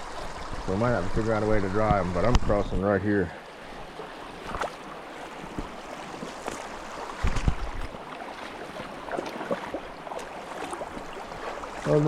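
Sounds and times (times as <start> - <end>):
stream rushing: 0.0 - 12.0
boots splashing through water: 3.8 - 12.0.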